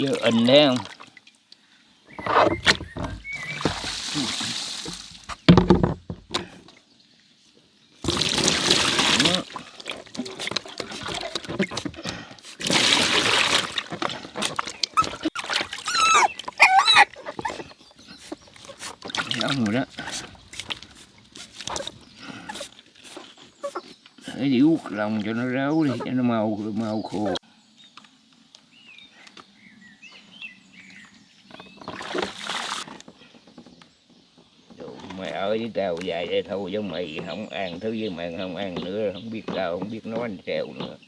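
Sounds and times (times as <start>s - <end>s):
water splashing over dog: 0.0s - 1.2s, 2.6s - 5.5s, 8.0s - 23.0s, 31.9s - 32.9s
small birds chirping: 0.0s - 5.6s, 13.5s - 41.0s
dog whining: 15.0s - 17.7s, 23.6s - 23.9s
hissing rustling noise: 18.1s - 27.4s.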